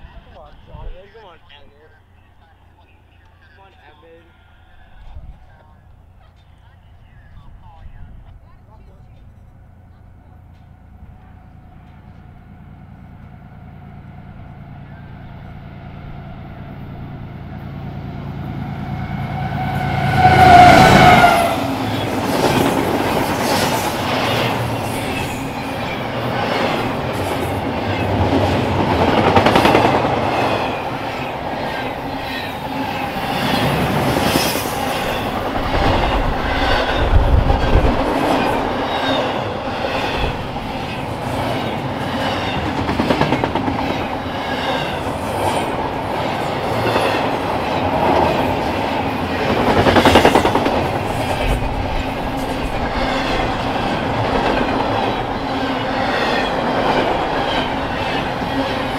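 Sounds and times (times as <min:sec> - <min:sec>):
train wheels clattering over rail joints: 0:31.6 - 0:45.1.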